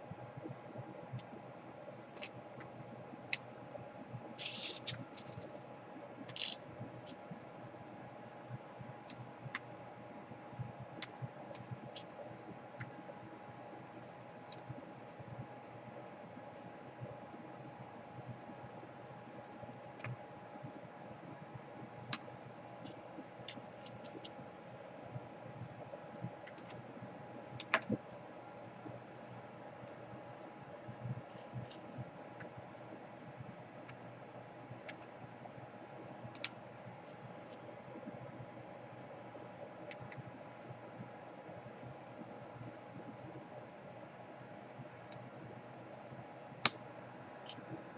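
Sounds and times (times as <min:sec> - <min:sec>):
faint steady hum: 0:00.0 - 0:47.9
tools and laptop parts clicking: 0:04.4 - 0:05.6, 0:06.3 - 0:07.2, 0:22.8 - 0:24.3.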